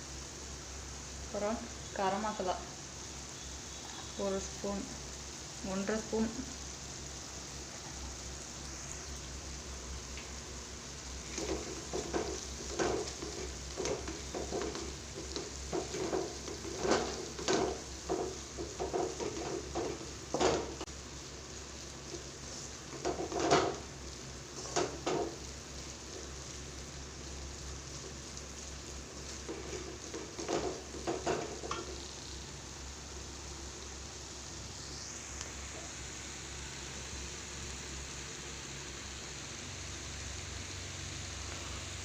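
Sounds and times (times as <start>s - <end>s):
masala sizzling in a pan: 0.0s - 42.0s
spoon scraping a pan: 11.3s - 20.8s, 22.1s - 23.9s, 29.2s - 32.1s.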